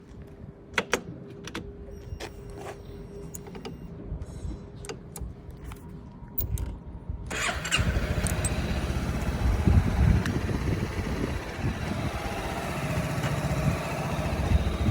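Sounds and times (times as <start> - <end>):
starter clicks: 7.3 - 11.9
scooter engine idling: 7.3 - 14.9.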